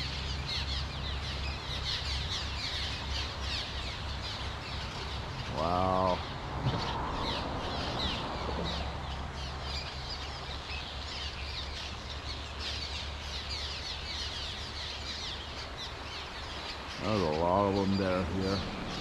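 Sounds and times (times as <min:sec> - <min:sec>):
swallows chirping: 0:00.0 - 0:19.0
steady low rumble: 0:17.4 - 0:19.0.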